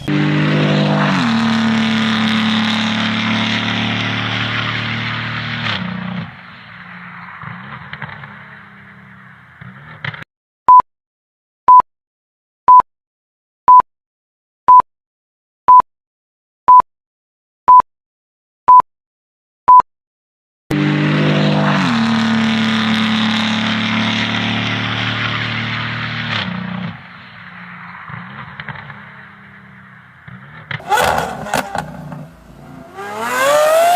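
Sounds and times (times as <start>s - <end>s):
performance car engine: 0.0s - 10.2s, 20.7s - 33.9s.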